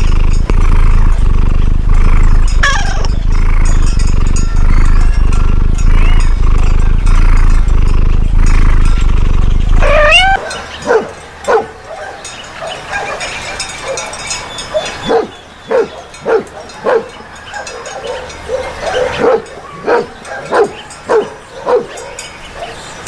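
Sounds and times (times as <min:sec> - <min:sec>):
dog barking: 0:09.8 - 0:22.9.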